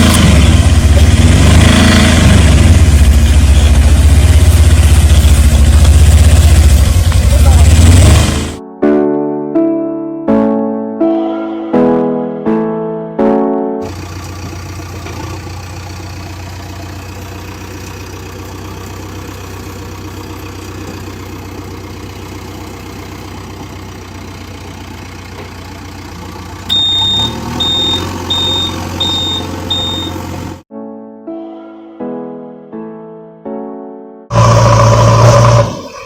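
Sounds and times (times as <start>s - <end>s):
truck engine idling: 0.0s - 8.6s, 13.8s - 30.6s
reversing beeper: 2.7s - 5.7s, 26.7s - 30.3s.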